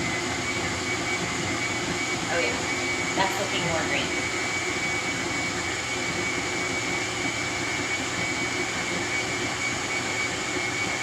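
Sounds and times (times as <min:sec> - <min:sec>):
blender running: 0:00.0 - 0:11.0.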